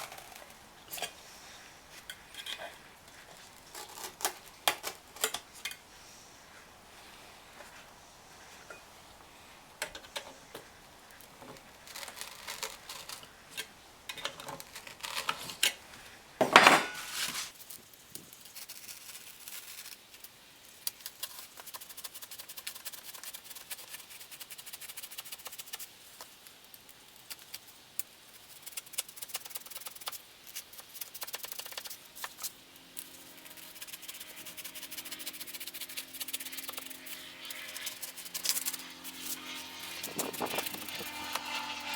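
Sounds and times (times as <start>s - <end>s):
blade scratching a cut line: 30.8s - 41.9s.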